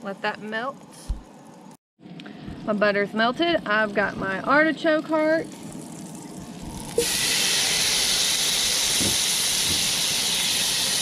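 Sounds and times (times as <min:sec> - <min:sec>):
food sizzling in butter: 0:03.2 - 0:11.0.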